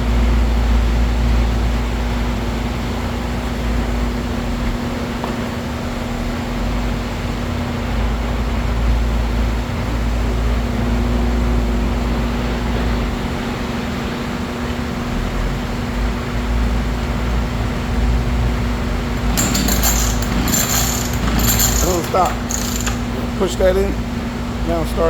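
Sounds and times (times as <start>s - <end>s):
rattling clatter: 19.0s - 23.8s
chainsaw engine running: 19.2s - 23.6s.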